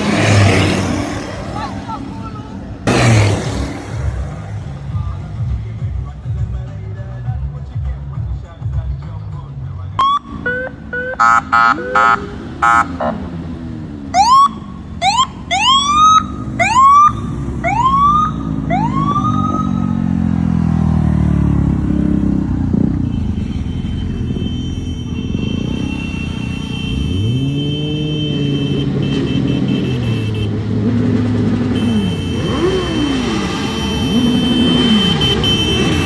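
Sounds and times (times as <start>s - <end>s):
emergency siren blasts and whoops: 10.0s - 13.2s, 14.1s - 20.5s
motorcycle engine running: 10.0s - 29.6s, 30.5s - 36.0s.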